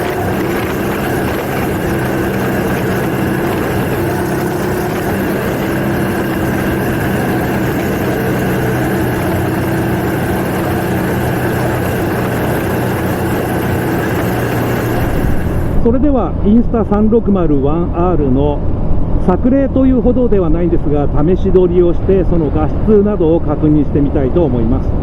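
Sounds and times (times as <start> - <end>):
motorcycle engine running: 0.0 - 16.0
road and wind noise: 0.0 - 25.0.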